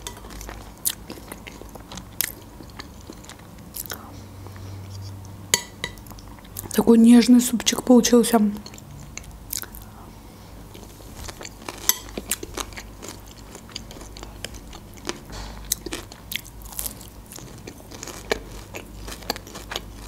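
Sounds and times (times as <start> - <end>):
chewing crispy chicken: 8.7 - 9.9, 10.7 - 20.0.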